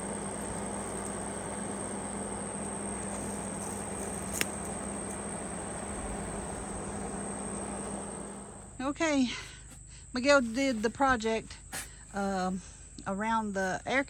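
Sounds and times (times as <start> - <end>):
thin high whine: 0.0 - 8.9
background hum and hiss: 0.0 - 14.0.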